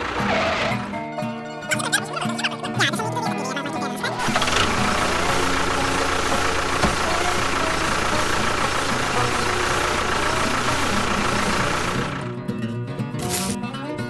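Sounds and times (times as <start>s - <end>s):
machine engine drone: 0.0s - 1.2s, 4.2s - 12.4s.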